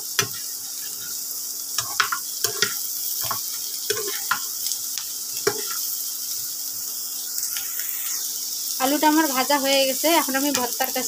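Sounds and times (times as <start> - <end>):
potatoes sizzling in oil: 0.0 - 11.0
metal spatula scraping a pan: 0.2 - 1.2, 1.8 - 4.5, 5.3 - 5.9.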